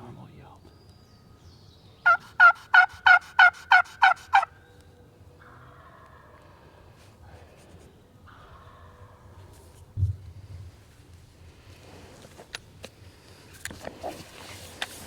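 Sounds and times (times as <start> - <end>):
turkey yelps: 2.0 - 4.7.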